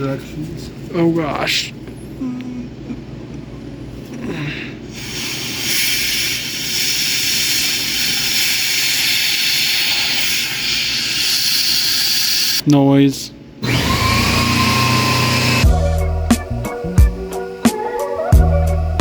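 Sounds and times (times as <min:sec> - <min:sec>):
compressed air hissing: 0:04.9 - 0:12.6, 0:13.6 - 0:16.1.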